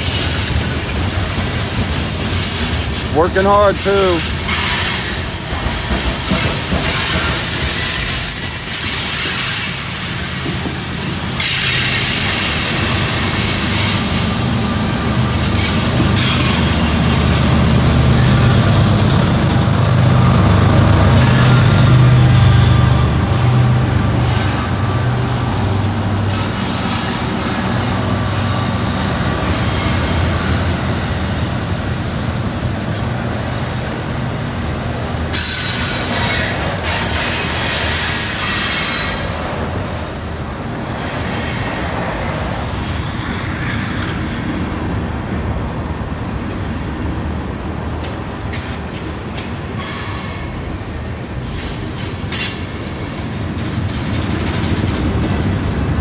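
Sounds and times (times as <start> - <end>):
train wheels clacking: 0.0 - 18.4, 35.3 - 39.7, 51.3 - 56.0
wheels squealing on rails: 0.0 - 31.1, 35.3 - 40.0, 40.8 - 47.2, 48.0 - 56.0
diesel locomotive engine drone: 0.0 - 56.0.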